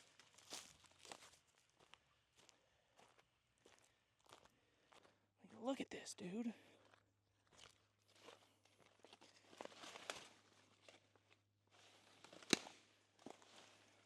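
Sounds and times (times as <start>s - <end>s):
footsteps crunching on ground: 0.0s - 5.1s, 6.8s - 11.0s.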